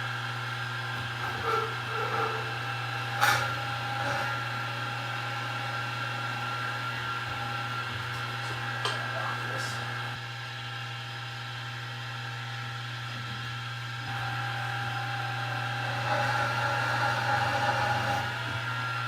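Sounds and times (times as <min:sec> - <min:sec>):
milling machine motor hum and whine: 0:00.0 - 0:19.0.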